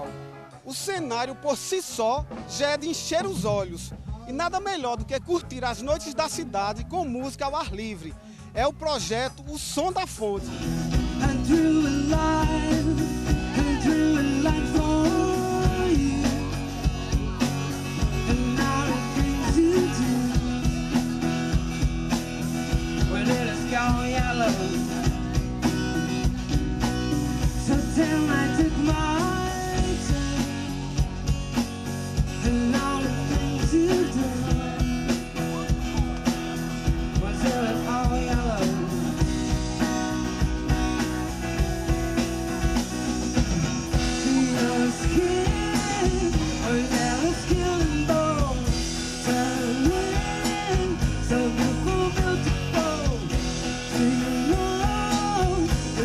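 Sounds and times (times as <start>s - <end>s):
live band music: 0.0s - 56.0s
person singing: 10.9s - 21.0s, 26.8s - 31.3s, 32.1s - 36.0s, 37.0s - 39.9s, 43.2s - 56.0s.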